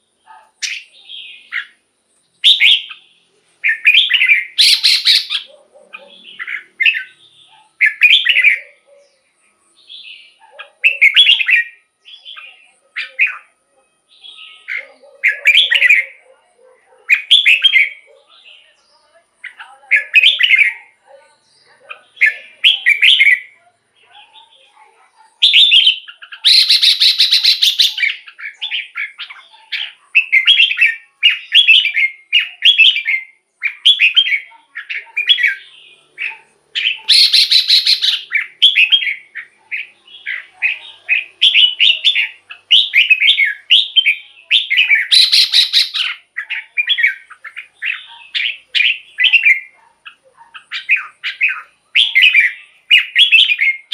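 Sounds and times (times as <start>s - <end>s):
bird whistled song: 0.3s - 1.8s, 2.4s - 9.1s, 9.8s - 13.5s, 17.1s - 18.1s, 22.1s - 23.6s, 25.4s - 53.9s.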